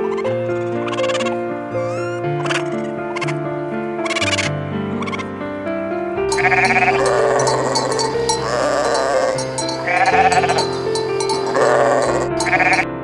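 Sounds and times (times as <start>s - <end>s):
music with held notes: 6.3s - 13.0s
quavering bleats: 6.3s - 13.0s.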